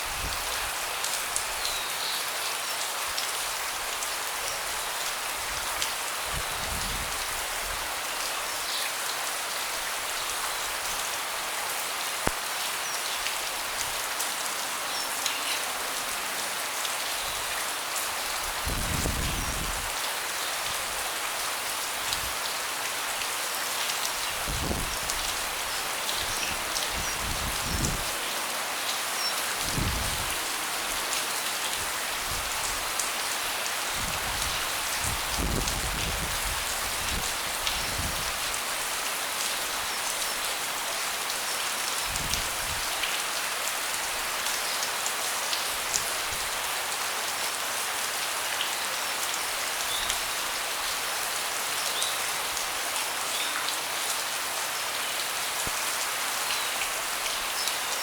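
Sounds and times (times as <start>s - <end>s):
rain falling on a deck: 0.0s - 58.0s.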